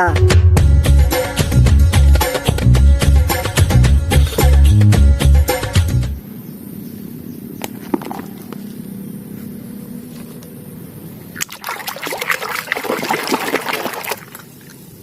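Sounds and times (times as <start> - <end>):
water trickling and sloshing: 11.4 - 15.0.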